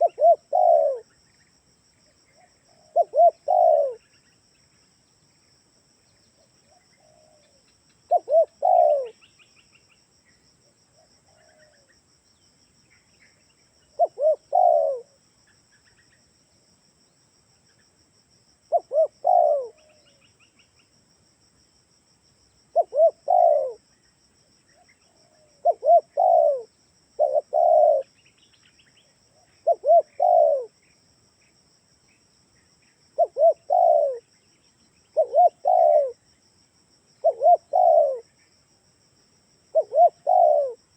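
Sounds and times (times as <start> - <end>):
dove cooing: 0.0 - 1.2, 2.3 - 4.1, 6.7 - 9.3, 11.0 - 11.9, 14.0 - 15.2, 18.7 - 20.2, 22.7 - 23.8, 24.8 - 28.1, 29.3 - 30.8, 33.2 - 34.3, 35.1 - 36.2, 37.2 - 38.3, 39.7 - 40.8
small birds chirping: 0.0 - 10.4, 11.0 - 18.0, 18.7 - 21.0, 22.7 - 36.2, 37.2 - 38.6, 39.7 - 40.8.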